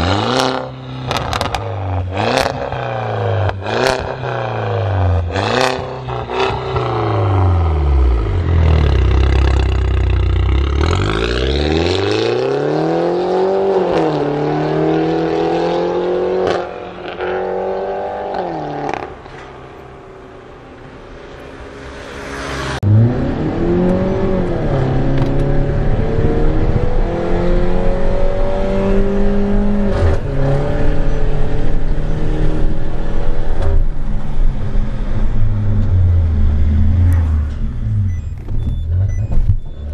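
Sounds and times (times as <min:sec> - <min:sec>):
car engine revving: 0:21.3 - 0:39.7.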